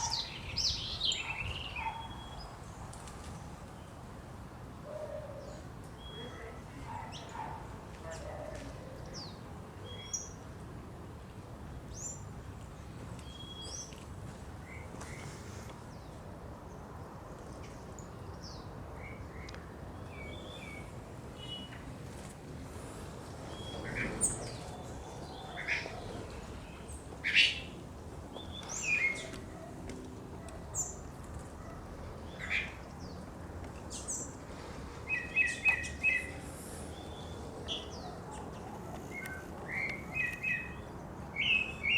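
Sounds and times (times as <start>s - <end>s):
wild birds singing: 0.0s - 2.9s, 4.8s - 7.6s, 22.8s - 29.7s, 30.4s - 41.9s.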